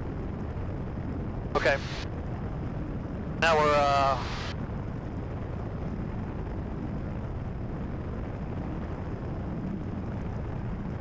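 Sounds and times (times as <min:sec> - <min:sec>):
aircraft engine and propeller drone: 0:00.0 - 0:11.0
airflow noise: 0:01.6 - 0:02.1, 0:03.4 - 0:04.6.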